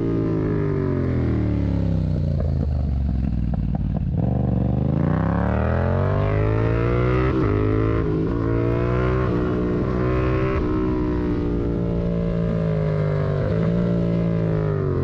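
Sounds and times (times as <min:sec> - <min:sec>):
motorcycle engine: 0:00.0 - 0:15.0.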